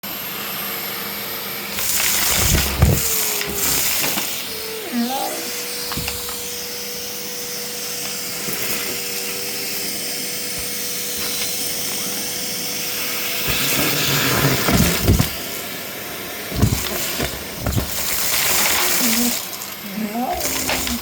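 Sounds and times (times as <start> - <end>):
vacuum cleaner whine: 0.0 - 21.0
vacuum airflow noise: 1.6 - 18.9
uneven rumbles and thumps: 1.8 - 4.3, 5.8 - 6.6, 13.5 - 15.5, 16.5 - 19.3.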